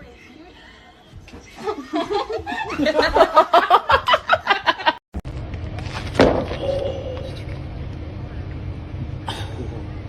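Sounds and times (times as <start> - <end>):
steady low hum: 5.2 - 10.0.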